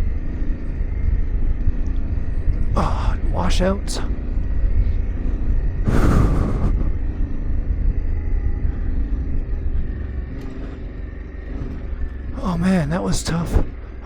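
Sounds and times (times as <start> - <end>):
loud rush of noise: 5.7 - 9.2.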